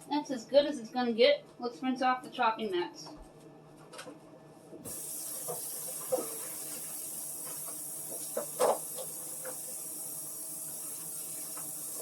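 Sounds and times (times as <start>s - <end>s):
kitchen tap running: 4.9s - 12.0s.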